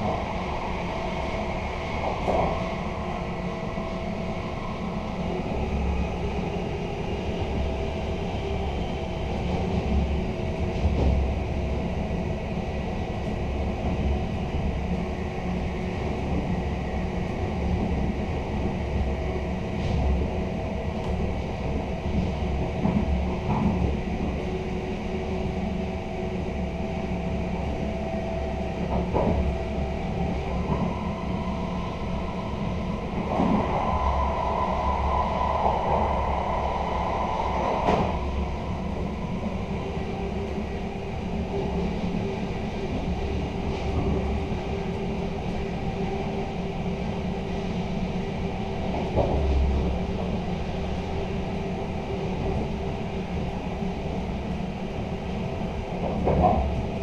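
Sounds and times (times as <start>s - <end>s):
train wheels rumbling: 17.4s - 57.0s
steady tones: 30.6s - 41.6s.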